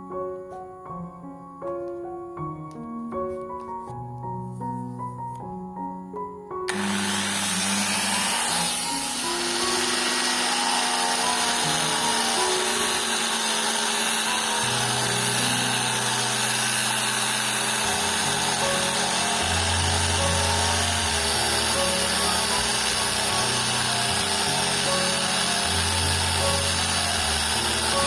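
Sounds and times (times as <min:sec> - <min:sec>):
music of held notes: 0:00.0 - 0:28.0
power tool grinding stone: 0:06.7 - 0:28.0.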